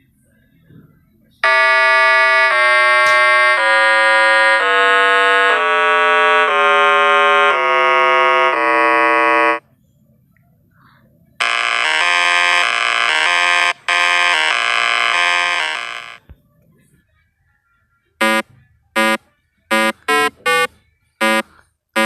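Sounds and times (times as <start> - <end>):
electronic buzzer notes: 1.4 - 9.6, 11.4 - 16.2, 18.2 - 22.0
harsh long buzz: 1.4 - 9.6, 11.4 - 16.2.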